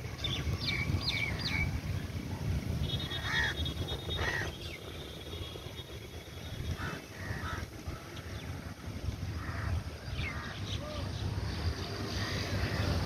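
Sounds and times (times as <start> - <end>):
birds whistling and chirping: 0.0 - 2.2, 2.8 - 7.1
wind on microphone: 0.0 - 13.0.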